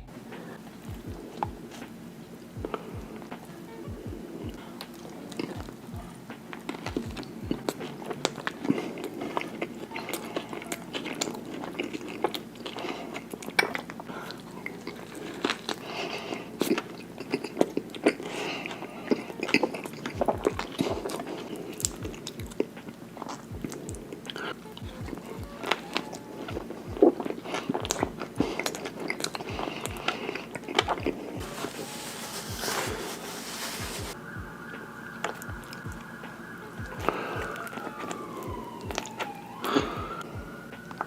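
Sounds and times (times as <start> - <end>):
wet chewing and biting: 4.4 - 32.8
mouth clicks and smacks: 16.6 - 31.4.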